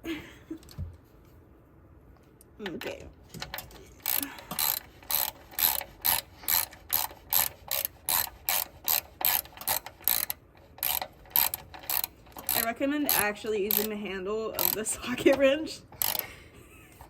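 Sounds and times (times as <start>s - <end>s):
socket wrench ratchet clicks: 3.5s - 14.0s, 14.6s - 16.3s.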